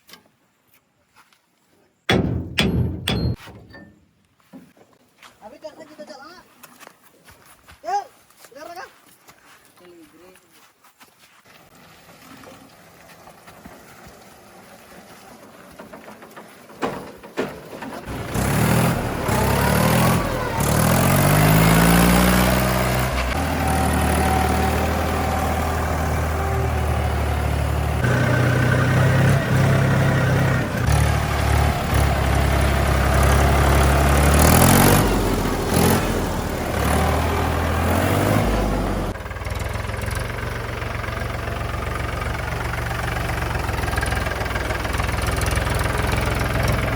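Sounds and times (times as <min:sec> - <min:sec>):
knocks: 0:02.1 - 0:04.7
diesel tractor engine revving: 0:17.7 - 0:46.9.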